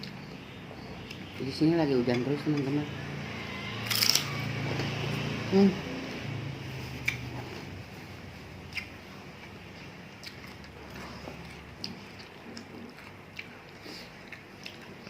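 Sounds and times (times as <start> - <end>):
soft chewing: 6.8 - 15.0.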